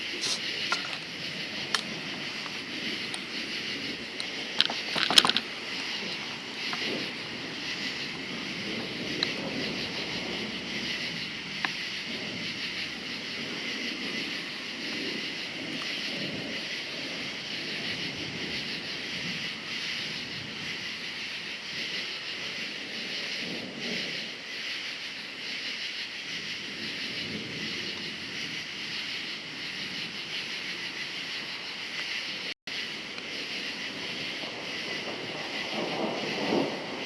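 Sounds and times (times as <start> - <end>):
distant thunder rumble: 0.0 - 25.5, 32.8 - 37.0
crickets chirping: 0.0 - 37.0.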